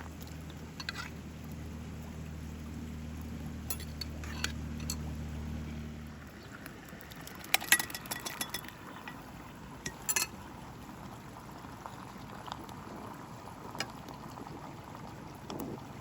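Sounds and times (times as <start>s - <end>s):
kitchenware clinking: 3.7s - 5.0s, 7.6s - 9.2s, 9.9s - 10.4s.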